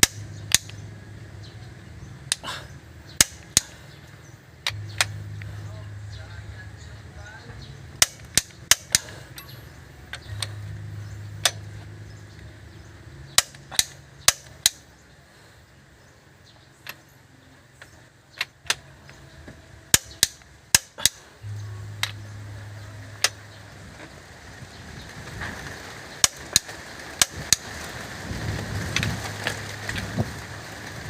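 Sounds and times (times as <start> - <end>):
sharp clicks and knocks: 0.0 - 0.8, 3.1 - 3.8, 4.6 - 5.5, 8.0 - 10.7, 13.3 - 14.8, 17.8 - 22.3, 26.2 - 27.7
low steady hum: 0.0 - 31.0.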